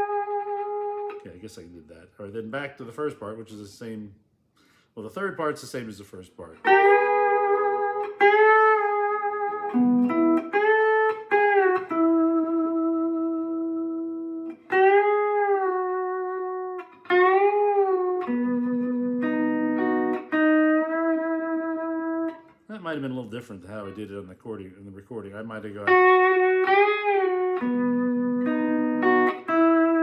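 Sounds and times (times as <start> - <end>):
lap steel guitar playing: 0.0 - 1.2, 6.6 - 22.5, 25.8 - 30.0.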